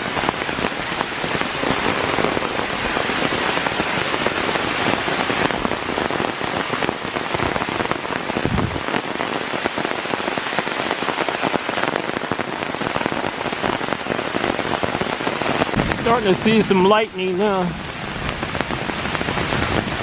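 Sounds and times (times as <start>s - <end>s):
heavy rain hiss: 8.4s - 8.8s.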